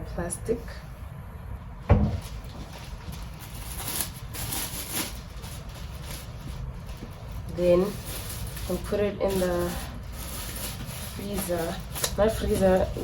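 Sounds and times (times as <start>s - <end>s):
sharp thump: 1.9s - 2.2s
plastic wrap crinkling: 2.1s - 13.0s.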